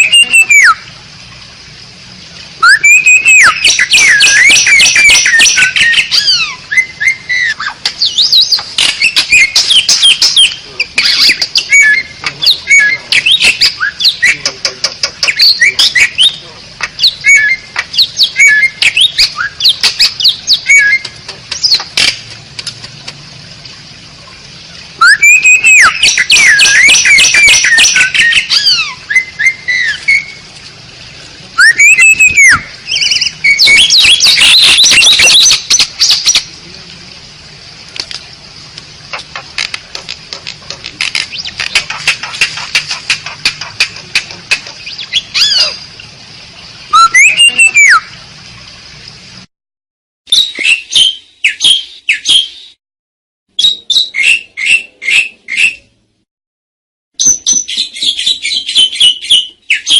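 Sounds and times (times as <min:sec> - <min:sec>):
starling whistles and chirps: 0:00.0 - 0:00.8, 0:02.6 - 0:14.6, 0:15.2 - 0:16.4, 0:17.0 - 0:21.9, 0:25.0 - 0:30.4, 0:31.6 - 0:36.4, 0:44.8 - 0:45.8, 0:46.9 - 0:48.1, 0:57.2 - 0:59.9.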